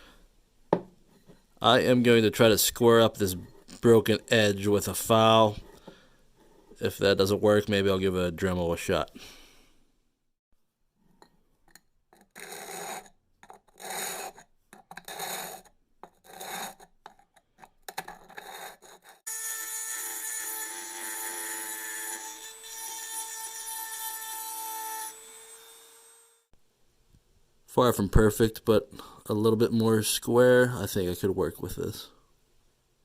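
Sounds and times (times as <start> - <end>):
hand file rasping ceramic: 12.2 - 19.4.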